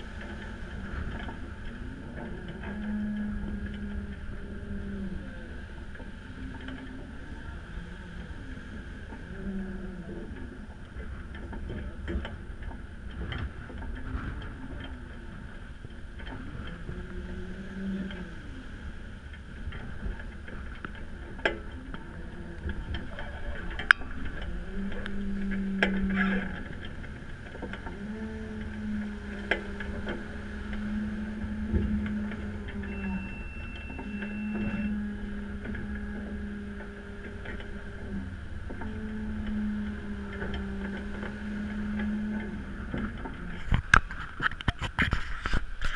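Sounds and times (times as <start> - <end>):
low hum: 0.0 - 45.9
water rushing past hull: 0.0 - 45.9
sharp clicks and knocks: 35.6 - 45.9.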